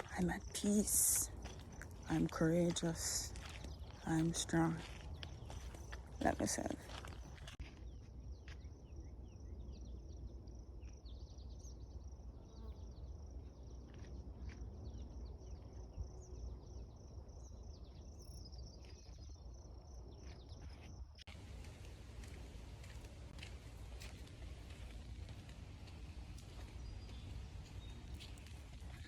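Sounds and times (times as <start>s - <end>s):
insects chirping: 0.0s - 7.6s, 15.1s - 29.0s
low wind rumble: 21.3s - 29.0s
bird chirps: 25.8s - 29.0s.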